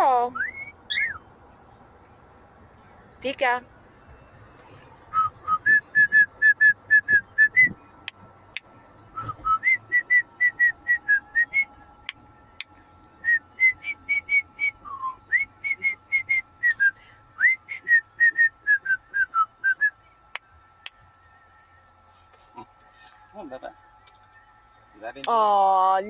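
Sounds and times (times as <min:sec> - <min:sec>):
cockatiel whistling: 0:00.3 - 0:01.2, 0:05.1 - 0:07.8, 0:09.2 - 0:11.7, 0:13.2 - 0:20.0.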